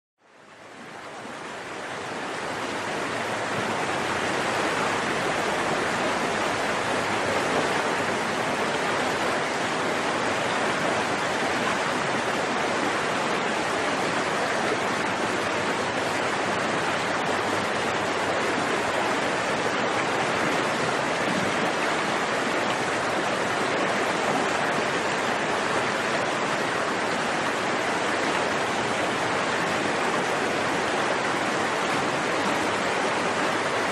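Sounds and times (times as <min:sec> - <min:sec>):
stream flowing: 0:00.2 - 0:33.9.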